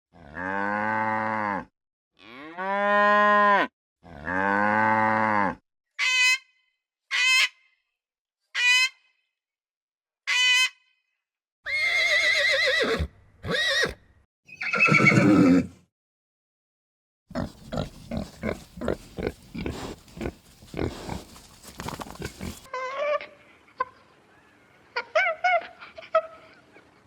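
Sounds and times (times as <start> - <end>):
cow mooing: 0.2 - 5.6
horse whinnying: 11.7 - 15.8, 17.4 - 22.7.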